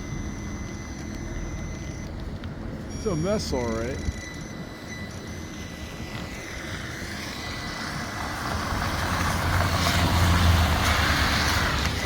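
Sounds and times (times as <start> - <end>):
heavy vehicle passing: 6.3 - 12.0.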